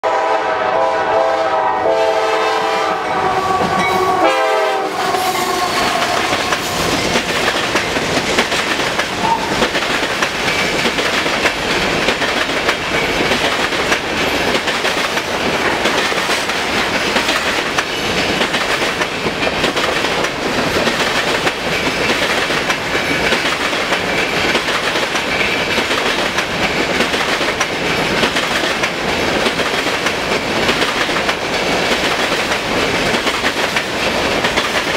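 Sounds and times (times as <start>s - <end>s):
locomotive horn blasts: 0.0s - 6.2s
train wheels on rail: 0.0s - 34.9s.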